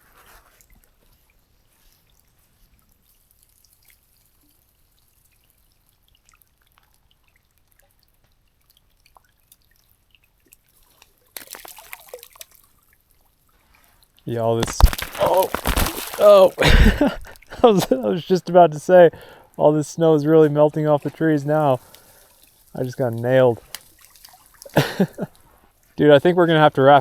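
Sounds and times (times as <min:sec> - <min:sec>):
meltwater dripping: 0:03.0 - 0:13.5, 0:14.2 - 0:26.3
rustling noise: 0:14.3 - 0:17.9.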